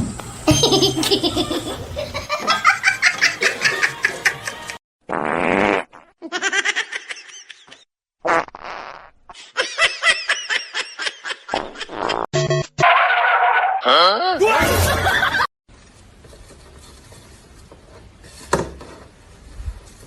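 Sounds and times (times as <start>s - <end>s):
laughter-like voices: 0.5s - 4.8s, 9.4s - 12.2s, 14.0s - 15.5s.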